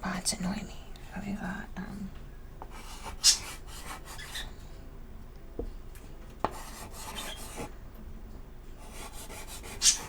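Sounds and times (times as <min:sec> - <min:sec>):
chalk scraping on chalkboard: 0:02.7 - 0:04.4, 0:06.4 - 0:07.7, 0:08.8 - 0:10.0
chalk tap: 0:06.4 - 0:07.7, 0:08.9 - 0:10.0.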